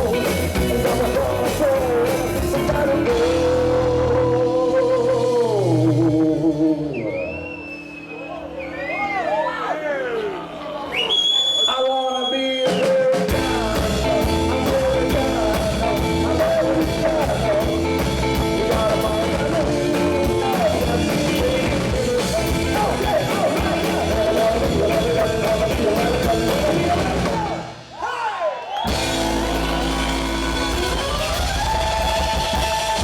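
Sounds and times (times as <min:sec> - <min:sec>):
drum beat: 0:00.0 - 0:03.4, 0:12.9 - 0:27.7, 0:28.9 - 0:33.0
person singing: 0:00.0 - 0:07.3, 0:11.7 - 0:28.3
bass: 0:00.0 - 0:09.0, 0:13.3 - 0:27.8, 0:28.9 - 0:33.0
guitar: 0:00.0 - 0:11.0, 0:11.8 - 0:27.9, 0:28.8 - 0:33.0.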